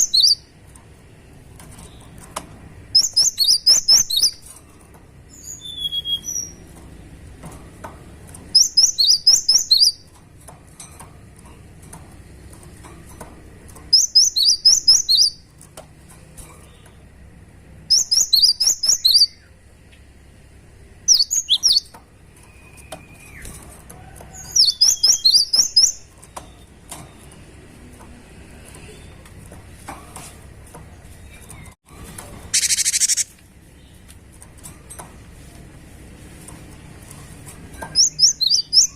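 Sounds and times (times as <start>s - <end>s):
bird singing high notes: 32.5s - 33.3s.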